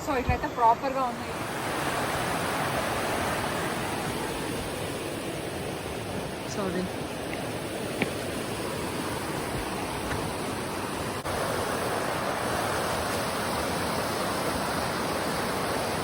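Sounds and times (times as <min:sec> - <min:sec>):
river rushing: 0:00.5 - 0:16.0.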